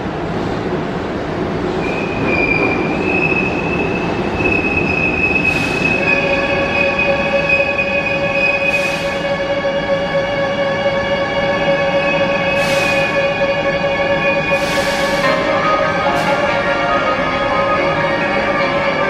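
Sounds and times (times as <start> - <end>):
train rumble: 0.0 - 19.0
train wheels squealing: 1.8 - 9.4, 11.8 - 13.4, 14.1 - 15.3.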